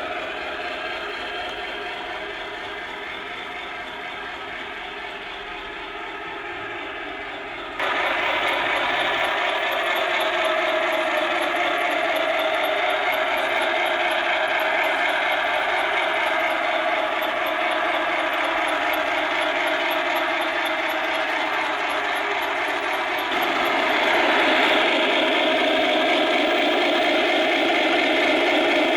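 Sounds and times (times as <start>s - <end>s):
model train whirring and rattling: 0.0s - 28.9s.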